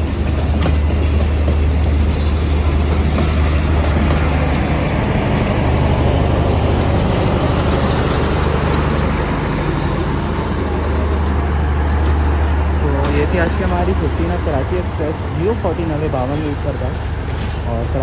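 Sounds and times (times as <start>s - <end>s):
low diesel engine hum: 0.0s - 18.0s
train wheels rumbling: 0.0s - 18.0s.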